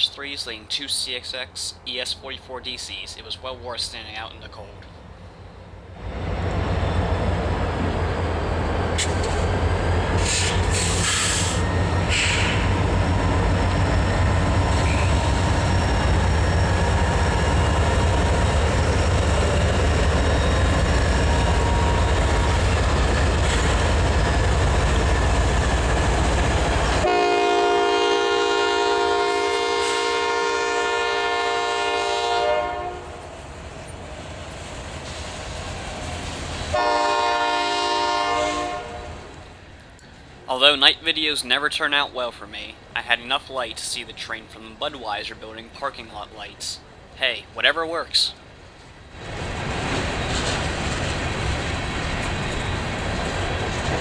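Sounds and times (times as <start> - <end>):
diesel locomotives rumbling: 0.0 - 54.0
train wheel noise: 0.0 - 54.0
locomotive air horn blasts: 27.0 - 33.3, 36.7 - 39.3.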